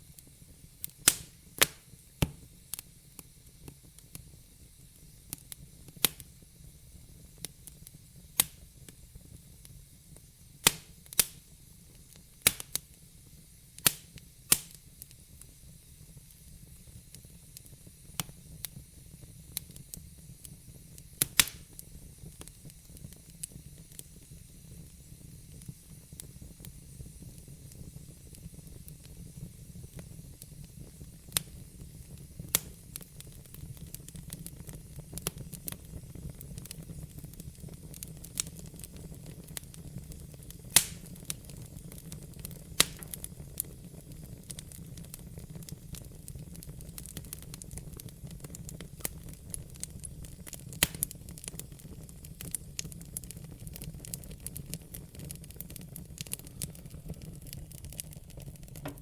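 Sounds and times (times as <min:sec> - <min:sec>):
low rumble and hiss: 0:00.0 - 0:59.0
wood fire crackling: 0:00.0 - 0:59.0.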